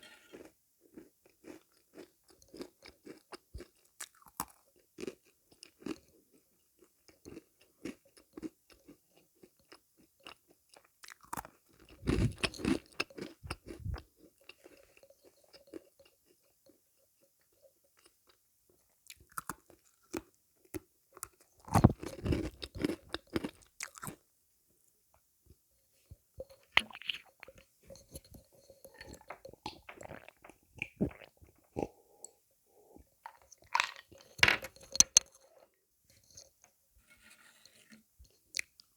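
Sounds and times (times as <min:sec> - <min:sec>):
person chewing crunchy sweets: 0:00.0 - 0:16.8, 0:21.2 - 0:24.2, 0:26.5 - 0:35.6.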